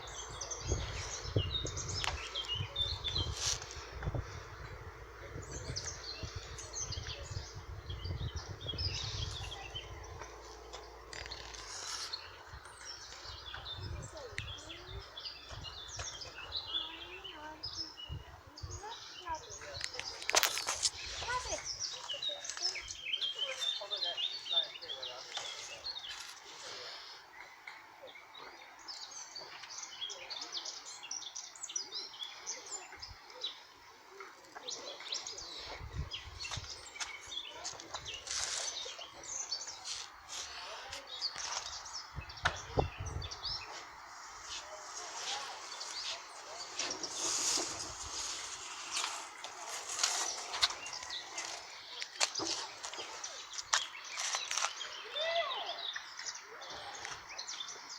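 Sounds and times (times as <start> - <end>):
low rumbles: 0.0 - 21.9
wild birds chirping: 0.0 - 57.9.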